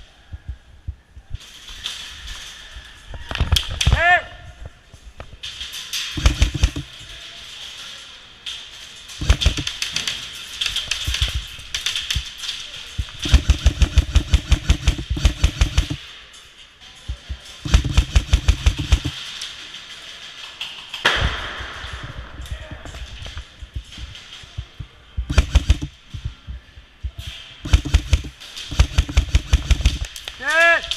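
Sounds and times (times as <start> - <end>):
airsoft gunfire: 6.2 - 6.9, 9.2 - 9.8, 13.0 - 16.0, 17.6 - 19.2, 24.6 - 26.4, 27.6 - 30.2.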